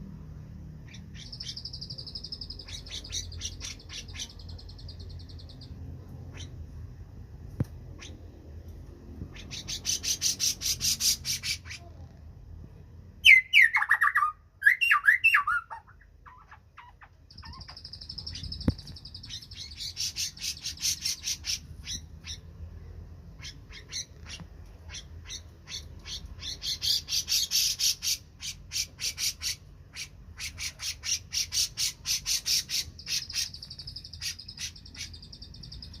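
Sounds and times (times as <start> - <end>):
bulbul chattering song: 0.8 - 6.7, 9.3 - 11.9, 13.2 - 36.0.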